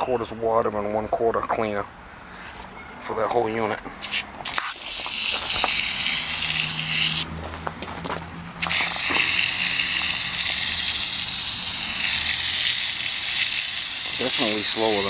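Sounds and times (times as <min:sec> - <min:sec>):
hand-pump sprayer hissing: 0:04.0 - 0:07.4, 0:08.6 - 0:15.0.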